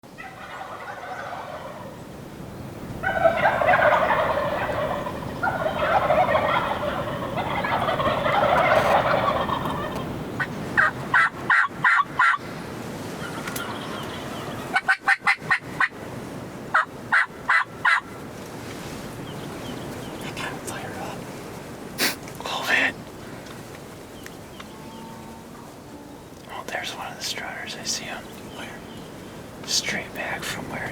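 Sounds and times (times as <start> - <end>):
turkey gobbling: 0.2 - 2.0, 3.0 - 12.4, 13.2 - 16.0, 16.7 - 18.2.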